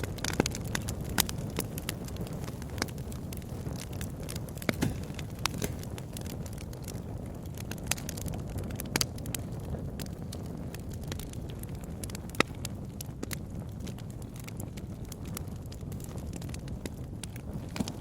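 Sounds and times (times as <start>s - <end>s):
bonfire crackling and popping: 0.0s - 18.0s.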